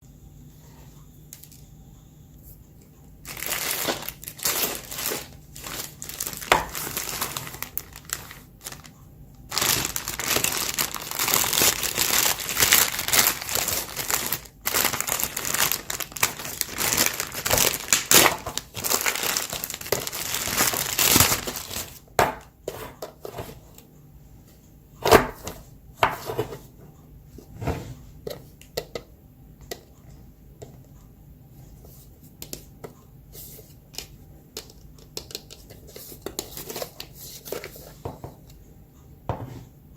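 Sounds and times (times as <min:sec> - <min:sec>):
snack packaging crinkling: 0:03.2 - 0:22.5.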